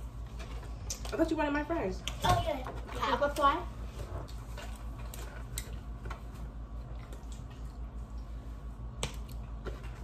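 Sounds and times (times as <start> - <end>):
steady low hum: 0.0 - 10.0
wet chewing and mouth sounds: 0.2 - 1.2, 4.1 - 10.0.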